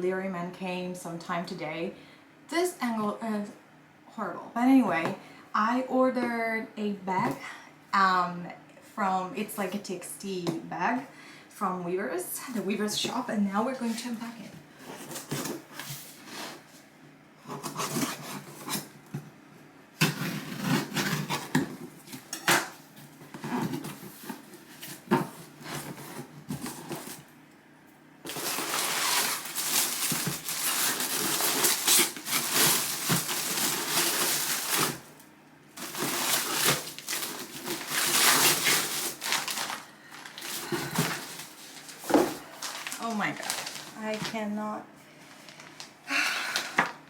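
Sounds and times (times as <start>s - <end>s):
packaging crinkling and knocking: 28.2s - 44.4s
wrapping rustling and tearing: 28.2s - 44.5s, 45.2s - 46.9s.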